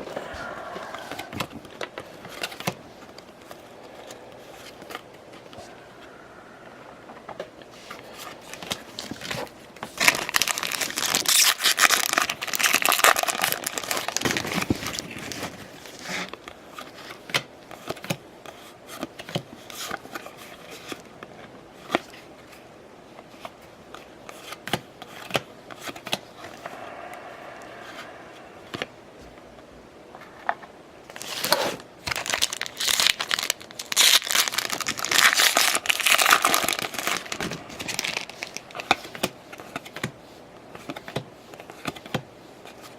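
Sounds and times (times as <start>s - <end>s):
foil wrappers tearing and crinkling: 8.6s - 15.5s, 31.1s - 39.0s.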